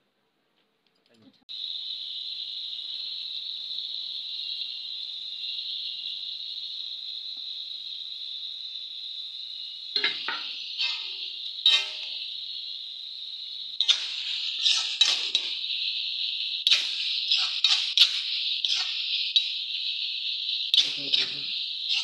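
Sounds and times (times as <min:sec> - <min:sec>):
onions frying in oil: 0:01.5 - 0:22.0
spatula scraping a pan: 0:10.0 - 0:12.3, 0:13.8 - 0:15.6, 0:16.7 - 0:19.1.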